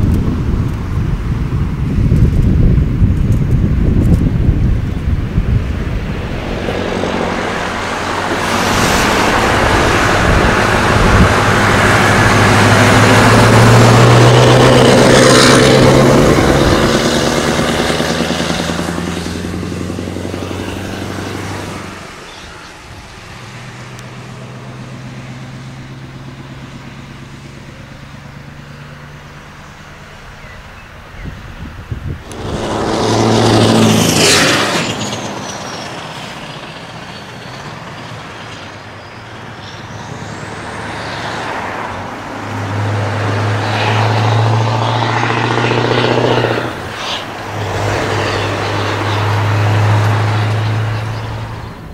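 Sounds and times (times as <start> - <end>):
engine running steadily: 0.0 - 51.9
truck driving past: 3.7 - 51.9.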